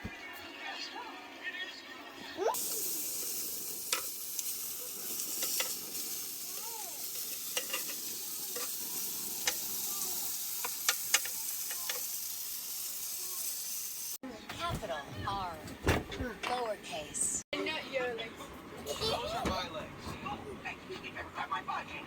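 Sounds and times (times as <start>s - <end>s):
sizzling hiss with pops: 2.6s - 14.2s.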